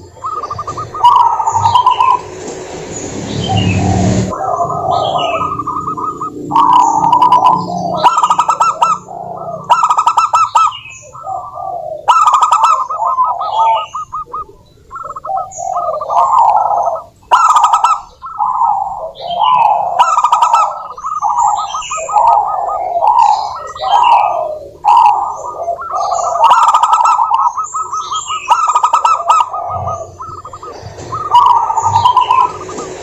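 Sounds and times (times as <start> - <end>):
dove cooing: 0.0 - 33.0.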